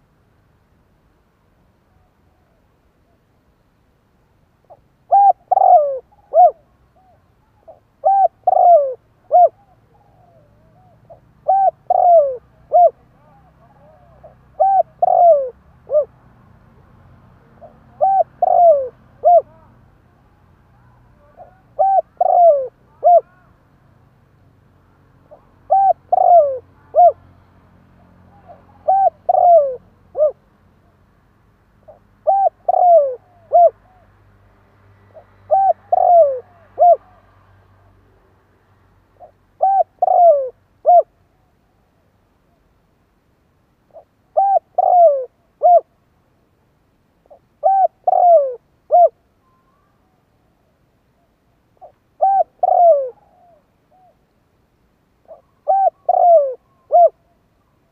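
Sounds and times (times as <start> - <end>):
dove cooing: 4.6 - 16.2, 17.4 - 19.8, 20.7 - 23.5, 25.3 - 27.3, 28.3 - 30.4, 31.8 - 34.1, 35.1 - 37.3, 39.2 - 41.5, 43.9 - 45.9, 47.2 - 50.2, 51.8 - 54.2, 55.2 - 57.3.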